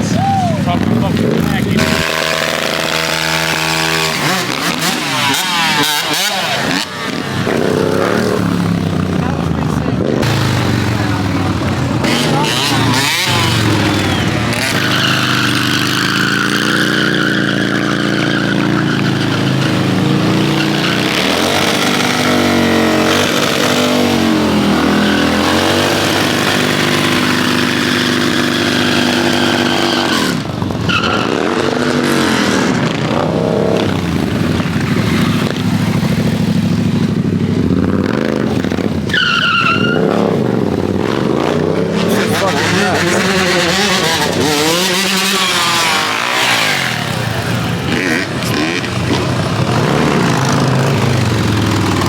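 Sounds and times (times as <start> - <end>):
car engine revving: 0.0 - 52.0
tyres squealing: 10.2 - 32.7, 38.6 - 52.0.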